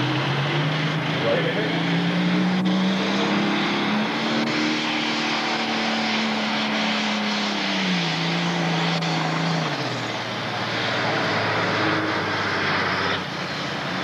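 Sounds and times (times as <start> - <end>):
diesel engine revving high: 0.0 - 14.0
announcer speaking: 1.2 - 1.8.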